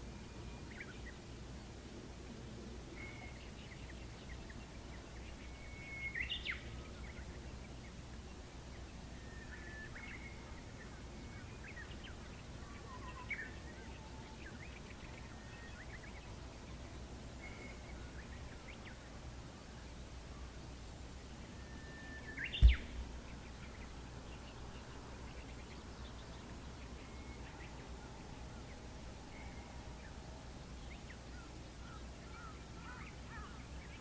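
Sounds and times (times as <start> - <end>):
birds chirping and whistling: 22.6 - 23.3.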